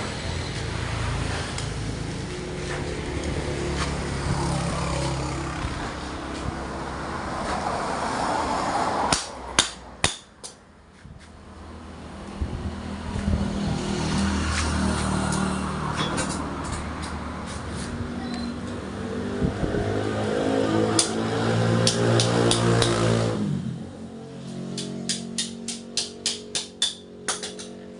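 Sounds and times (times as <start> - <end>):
motorcycle engine running: 0.1 - 6.6.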